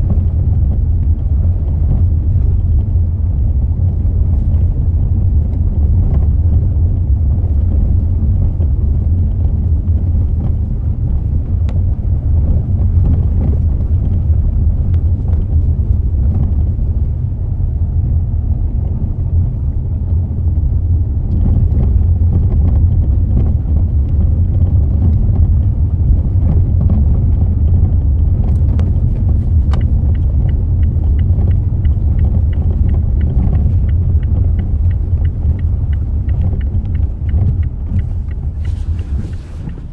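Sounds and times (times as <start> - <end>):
car low rumble: 0.0 - 39.9
rapid light ticks: 5.4 - 16.8, 21.3 - 39.9.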